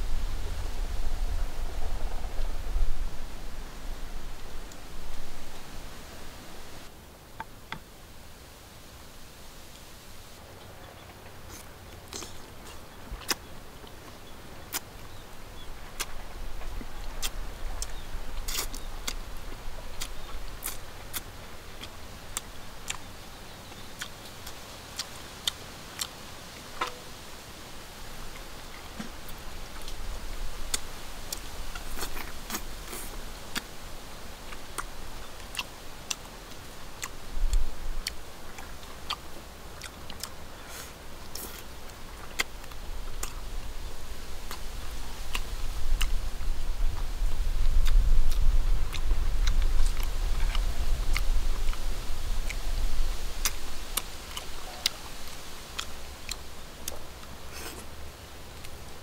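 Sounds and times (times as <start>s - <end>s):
person chewing: 11.4s - 15.2s, 15.9s - 23.1s, 23.7s - 27.0s, 30.7s - 33.7s, 34.4s - 43.6s, 44.5s - 46.2s, 47.3s - 51.8s, 53.4s - 57.9s
mouth clicks and smacks: 16.0s - 23.1s, 47.7s - 52.8s, 53.4s - 57.9s.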